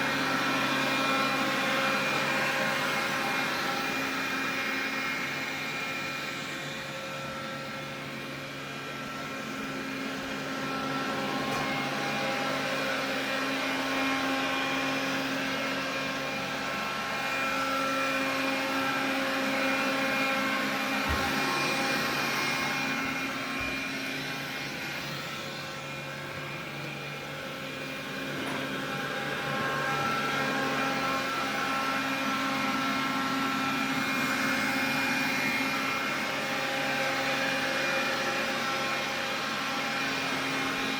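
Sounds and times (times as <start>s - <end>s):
vacuum cleaner motor whine: 0.0s - 40.9s.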